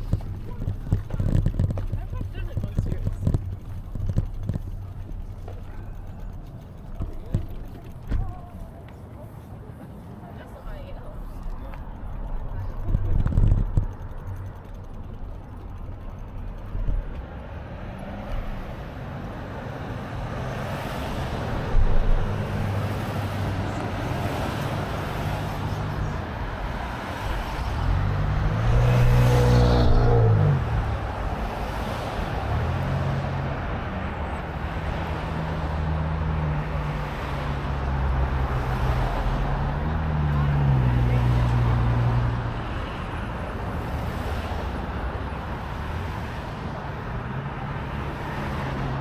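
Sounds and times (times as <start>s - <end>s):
road traffic drone: 0.0s - 49.0s
motor vehicle passing close: 12.2s - 43.0s.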